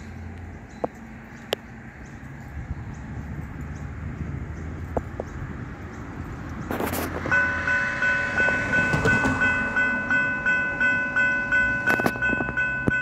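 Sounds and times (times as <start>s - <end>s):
level crossing warning bell: 0.0s - 3.9s, 7.2s - 13.0s.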